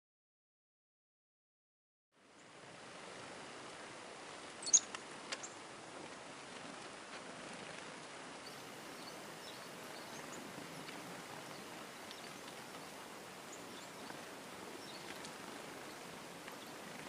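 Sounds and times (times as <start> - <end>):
outdoor air hiss: 2.1 - 17.0
small birds chirping: 4.4 - 5.7, 6.3 - 17.0.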